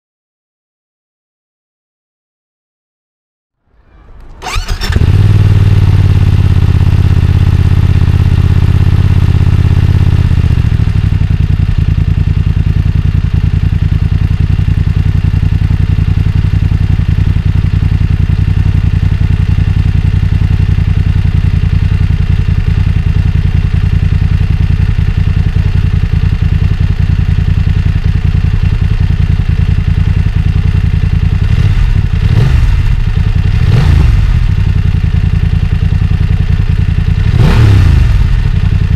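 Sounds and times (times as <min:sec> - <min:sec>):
engine revving: 0:04.0 - 0:11.0, 0:31.3 - 0:34.9, 0:37.0 - 0:38.9
motorcycle engine idling: 0:04.4 - 0:38.9.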